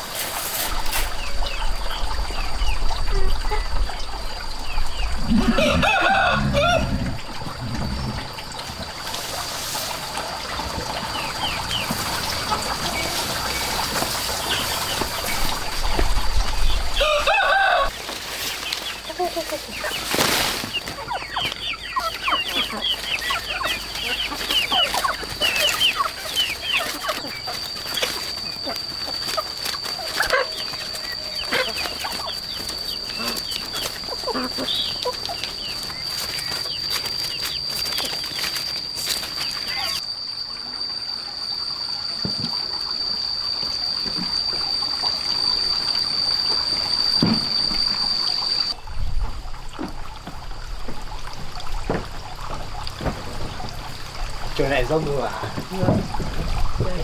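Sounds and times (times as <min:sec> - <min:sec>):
chickens chirping and clucking: 0:00.2 - 0:40.0, 0:51.3 - 0:57.0
rooster crowing: 0:05.3 - 0:08.3, 0:16.9 - 0:18.0.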